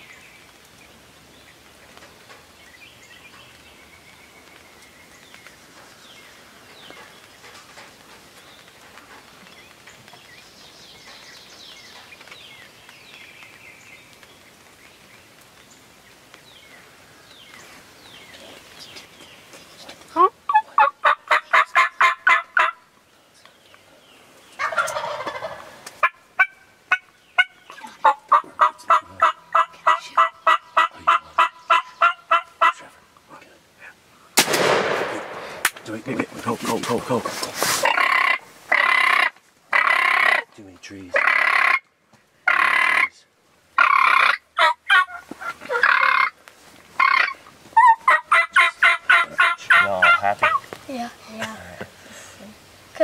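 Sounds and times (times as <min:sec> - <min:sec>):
faint birdsong: 0:00.0 - 0:53.0
turkey gobble: 0:20.2 - 0:22.8, 0:24.6 - 0:32.9, 0:37.8 - 0:40.5, 0:41.1 - 0:41.8, 0:42.4 - 0:43.2, 0:43.8 - 0:46.4, 0:47.0 - 0:50.7
turkey rapid yelps: 0:20.2 - 0:22.8, 0:24.6 - 0:32.8, 0:37.8 - 0:40.4, 0:41.2 - 0:41.8, 0:42.5 - 0:43.2, 0:43.8 - 0:46.3, 0:47.0 - 0:50.7.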